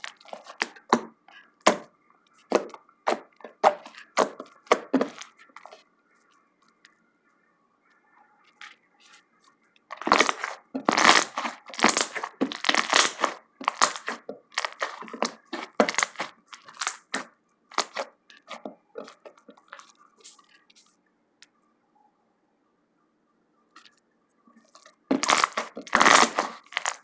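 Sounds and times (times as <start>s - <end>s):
slime squished with crackly pops: 10.0s - 18.1s, 24.8s - 27.0s.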